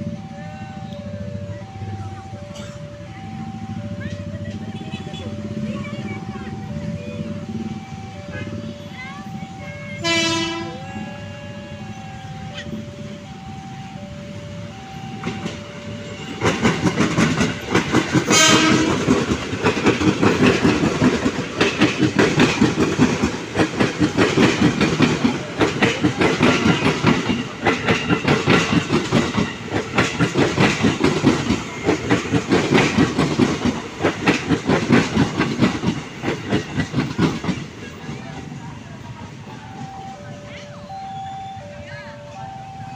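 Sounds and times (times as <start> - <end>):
train horn blast: 10.0 - 12.7, 18.2 - 19.2
two-tone level-crossing bell: 10.6 - 18.2, 39.1 - 42.9
train wheels clattering over rail joints: 15.2 - 40.0.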